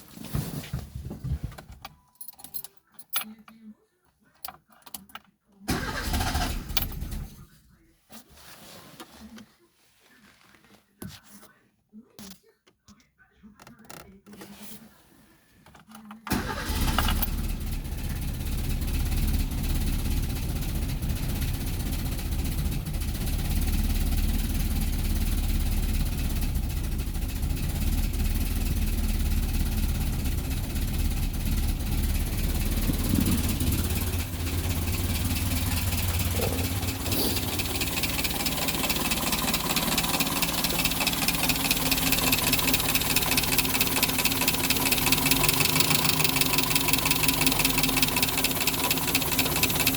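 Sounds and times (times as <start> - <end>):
car engine idling: 16.3 - 49.9.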